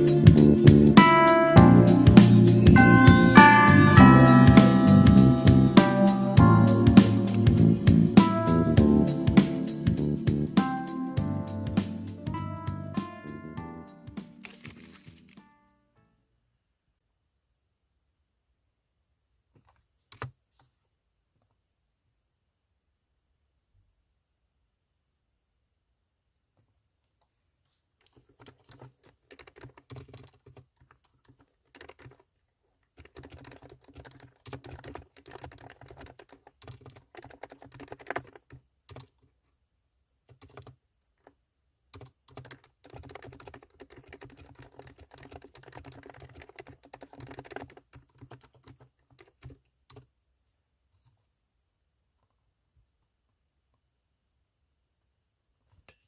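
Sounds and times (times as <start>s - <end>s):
mechanical keyboard typing: 14.0s - 15.5s, 28.1s - 32.3s, 33.0s - 39.2s, 40.3s - 40.8s, 42.0s - 50.1s.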